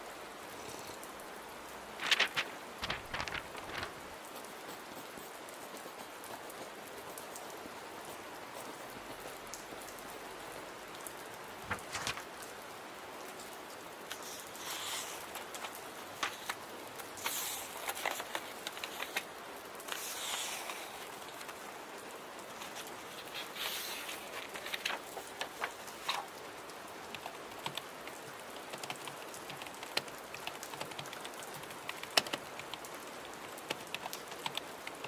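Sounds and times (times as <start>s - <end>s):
rain pattering: 0.0s - 35.0s
laptop keyboard typing: 14.1s - 21.6s, 27.1s - 35.0s.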